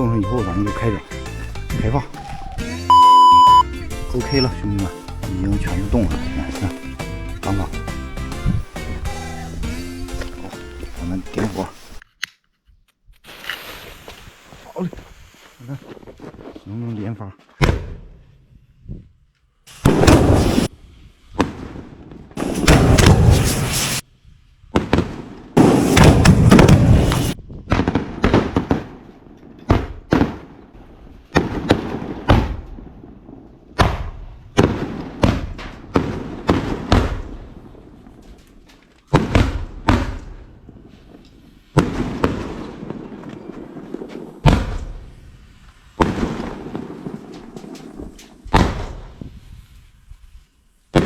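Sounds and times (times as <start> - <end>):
firecrackers banging: 19.7 - 20.7, 22.4 - 24.0, 24.9 - 28.9, 34.6 - 49.6.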